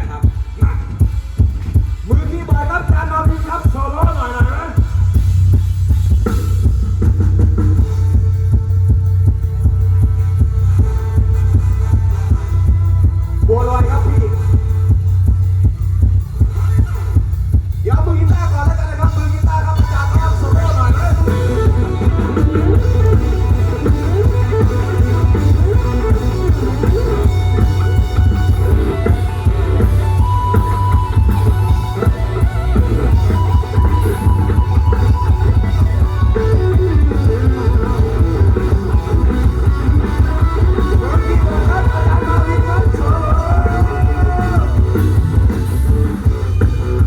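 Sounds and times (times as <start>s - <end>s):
bass guitar: 0.0s - 47.0s
drum kit: 0.0s - 47.0s
guitar solo: 20.3s - 47.0s.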